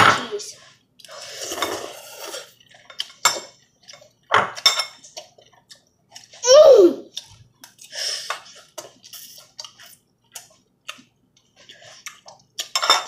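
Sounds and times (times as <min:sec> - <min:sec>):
chewing and mouth noises: 0:05.0 - 0:06.4, 0:07.1 - 0:12.8.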